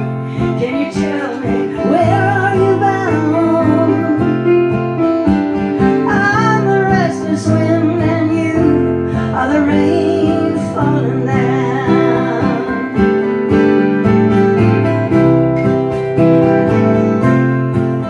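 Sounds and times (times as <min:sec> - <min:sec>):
person singing with vibrato: 0:00.0 - 0:05.0, 0:05.8 - 0:13.4
acoustic guitar strumming: 0:00.0 - 0:18.0.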